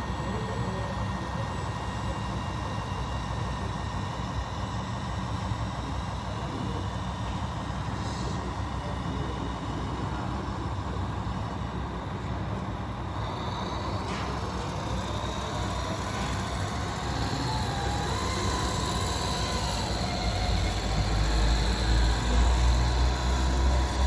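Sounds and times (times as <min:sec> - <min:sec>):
motor whine rising in pitch: 0:07.0 - 0:24.0.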